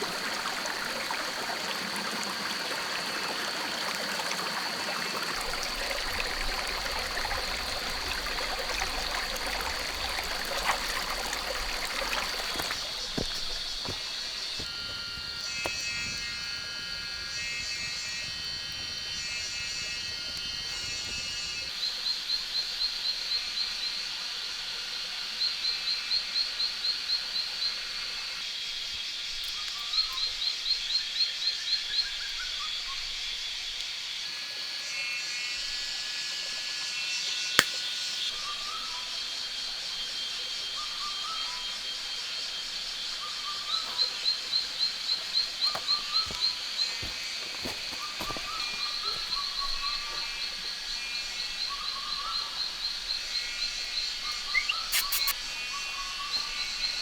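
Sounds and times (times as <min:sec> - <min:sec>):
rapid chirps: 0:40.6 - 0:57.0
lower animal calls: 0:54.2 - 0:56.7
sharp click: 0:54.6 - 0:55.4.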